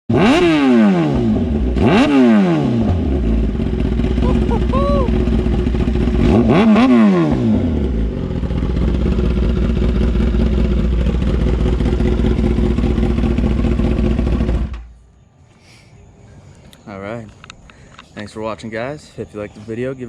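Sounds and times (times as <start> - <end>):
motorcycle engine idling: 3.0 - 15.0.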